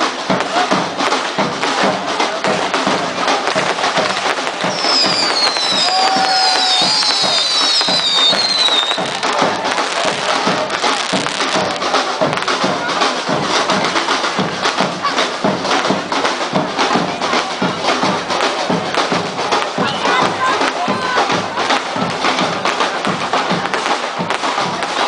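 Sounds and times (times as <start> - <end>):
fireworks crackling and popping: 0.0 - 25.0
music: 0.0 - 25.0
firework whistles: 2.5 - 12.6.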